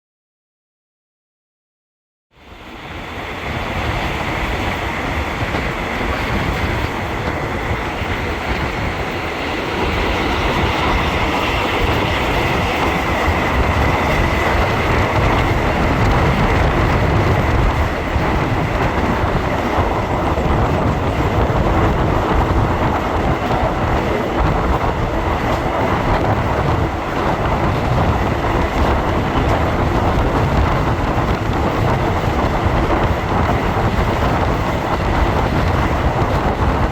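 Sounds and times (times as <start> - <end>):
train rumbling on track: 2.3 - 36.9.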